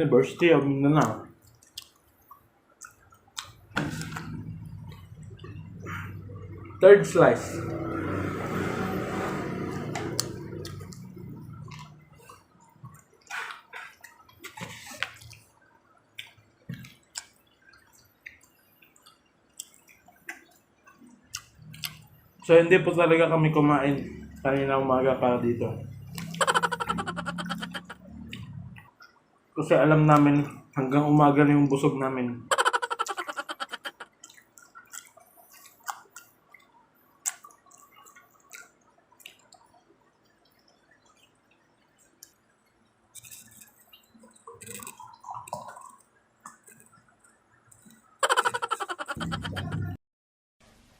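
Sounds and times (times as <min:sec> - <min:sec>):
wet chewing and mouth smacks: 0:01.4 - 0:06.7, 0:10.1 - 0:15.6, 0:16.2 - 0:22.2, 0:33.2 - 0:41.3, 0:43.1 - 0:48.1.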